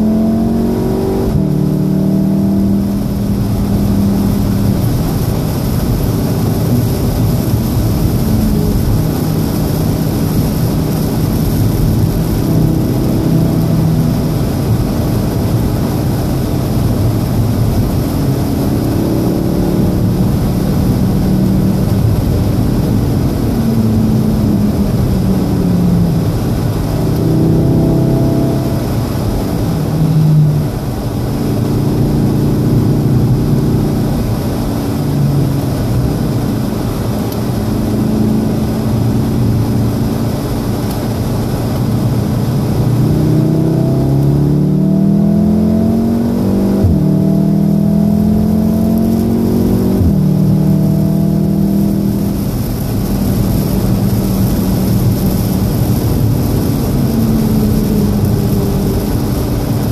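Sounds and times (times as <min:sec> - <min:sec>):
car engine revving: 0:00.0 - 0:59.9
tyres hissing on wet road: 0:00.4 - 0:59.9.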